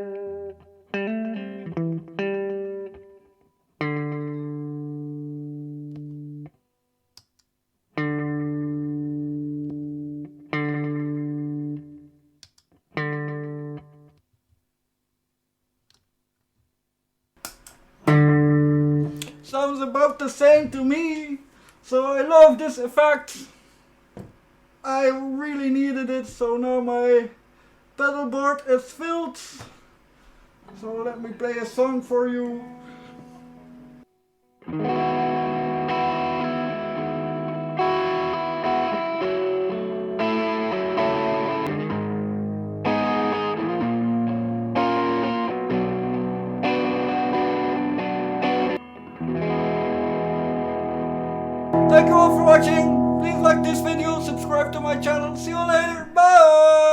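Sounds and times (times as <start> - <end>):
electric guitar chords with delay: 8.0 - 12.0, 34.7 - 56.7
scratchy guitar strums: 18.1 - 19.4, 50.5 - 56.9.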